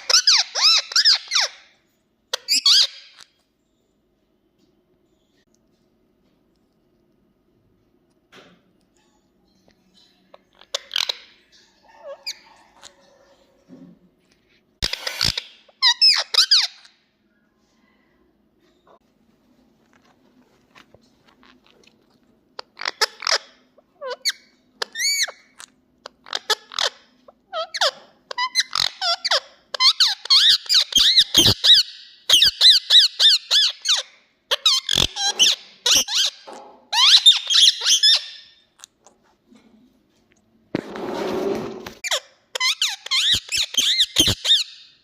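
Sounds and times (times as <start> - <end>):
parakeet chirps and squawks: 0.0 - 3.4, 9.9 - 13.4, 14.8 - 17.0, 22.6 - 39.0, 42.0 - 45.0.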